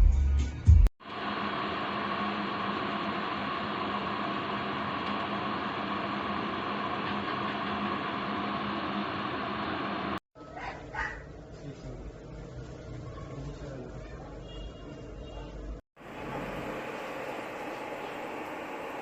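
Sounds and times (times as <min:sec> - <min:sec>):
electric kettle heating water: 0:01.0 - 0:10.2, 0:16.0 - 0:19.0.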